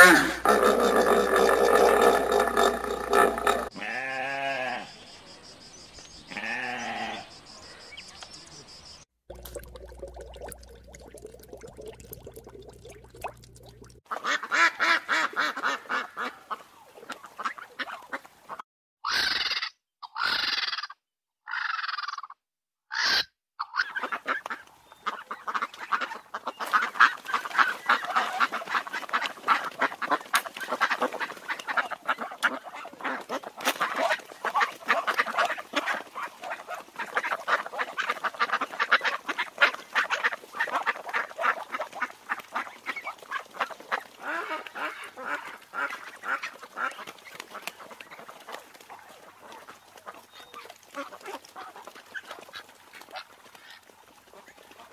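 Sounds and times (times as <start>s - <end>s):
duck calls: 14.1s - 16.6s, 22.9s - 48.6s
flock of ducks quacking: 14.1s - 19.6s, 23.0s - 54.9s.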